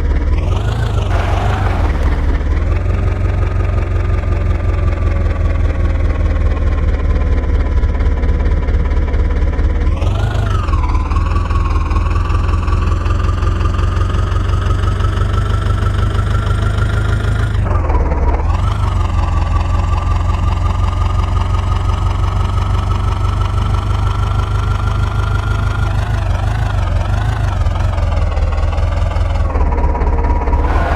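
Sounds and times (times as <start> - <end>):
tractor diesel engine running: 0.0 - 7.6, 30.4 - 30.9.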